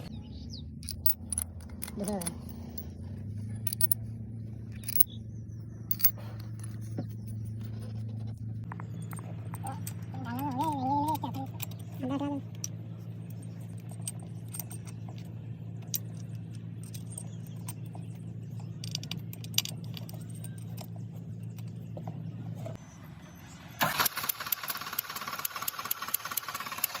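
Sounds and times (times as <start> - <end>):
steady low hum: 0.0 - 23.8
diesel engine clattering: 0.0 - 27.0
metallic tool clicks: 5.9 - 7.2.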